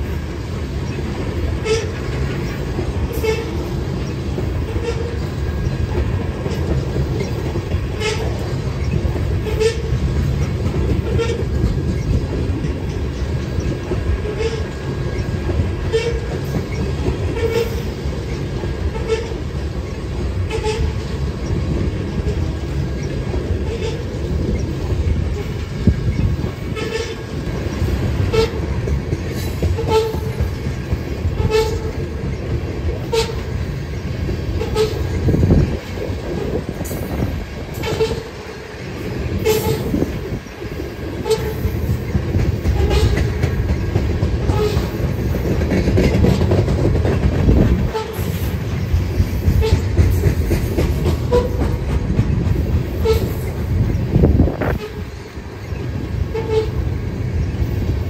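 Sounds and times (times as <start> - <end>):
freight train rumble: 0.0 - 58.0.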